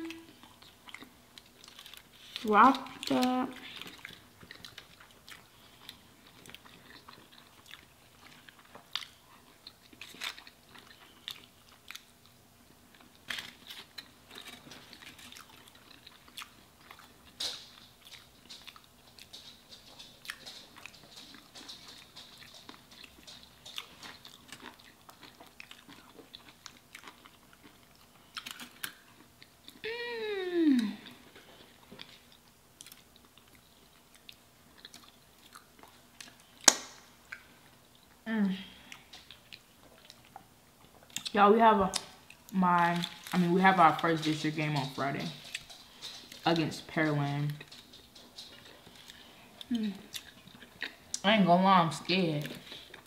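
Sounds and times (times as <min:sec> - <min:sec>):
chewing and crunching food: 0:00.0 - 0:29.8, 0:30.8 - 0:53.0.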